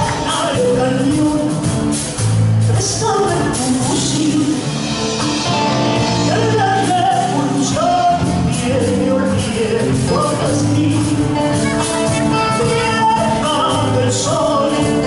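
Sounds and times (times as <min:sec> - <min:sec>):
person singing folk melody: 0:00.0 - 0:01.8, 0:06.0 - 0:15.0
instrumental accompaniment: 0:00.0 - 0:15.0.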